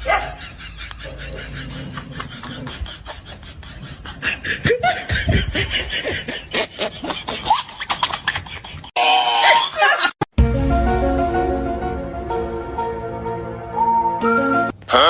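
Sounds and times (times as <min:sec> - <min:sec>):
person laughing: 0:00.2 - 0:10.2.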